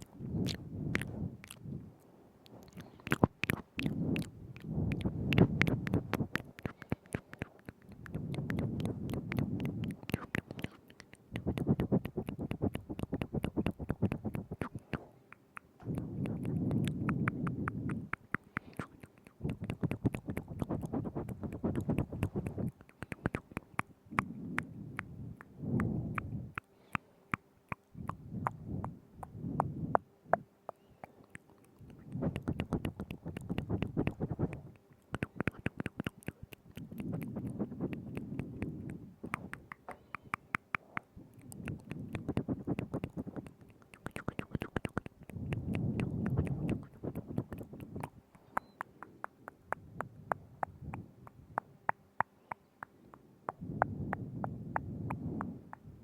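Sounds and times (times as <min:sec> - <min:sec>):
wet tongue and lip clicks: 0:00.0 - 0:56.0.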